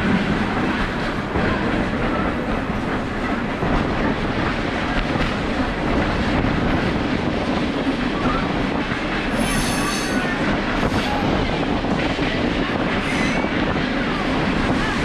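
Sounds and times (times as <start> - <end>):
train wheels rumbling on rail: 0.0 - 15.0
high-pitched wheel squeal: 9.4 - 10.3.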